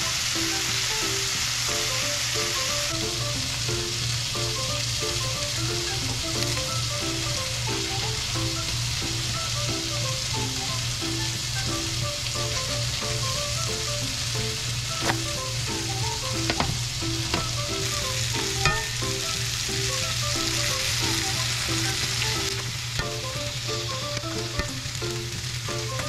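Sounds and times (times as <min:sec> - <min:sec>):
food sizzling in pans: 0:00.0 - 0:26.0.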